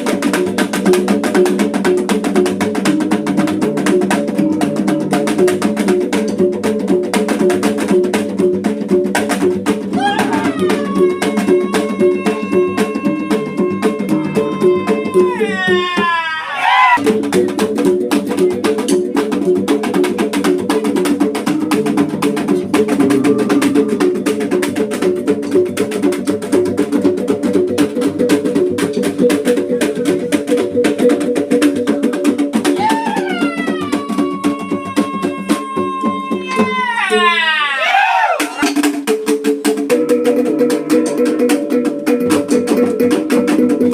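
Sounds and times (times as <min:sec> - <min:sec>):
rapid drumbeats: 0:00.0 - 0:43.9
long high shouted call: 0:10.0 - 0:17.0, 0:32.8 - 0:38.6.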